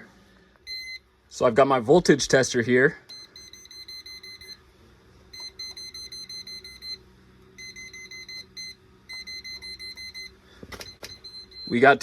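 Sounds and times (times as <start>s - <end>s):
voltage tester beeping: 0.6s - 1.1s, 3.1s - 4.6s, 5.3s - 7.0s, 7.6s - 12.0s.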